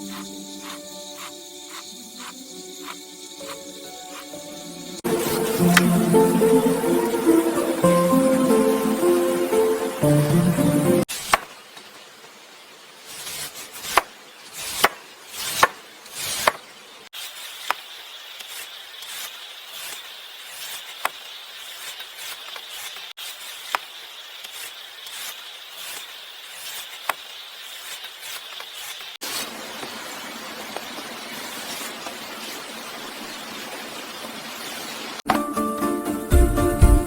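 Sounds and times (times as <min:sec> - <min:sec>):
knife slicing fruit on wooden board: 0:13.1 - 0:16.6.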